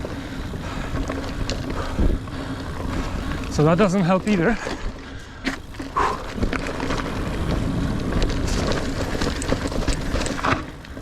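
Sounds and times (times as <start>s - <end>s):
bike clicks and rattles: 0.0s - 11.0s
bike tyres on dirt: 0.0s - 11.0s.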